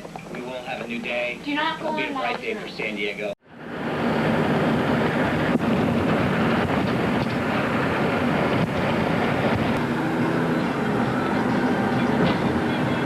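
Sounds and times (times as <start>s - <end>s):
car road and engine rumble: 0.0s - 13.0s
wind on microphone: 3.6s - 13.0s.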